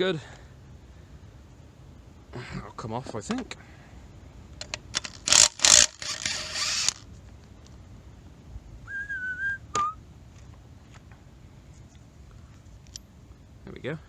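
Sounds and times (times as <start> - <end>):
power tool undoing bolts: 4.6 - 7.0.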